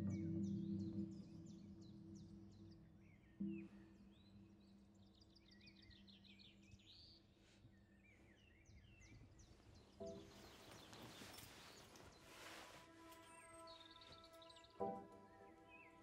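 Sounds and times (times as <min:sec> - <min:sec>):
birds chirping and trilling: 0:00.0 - 0:16.0
soft rustling: 0:09.1 - 0:14.7.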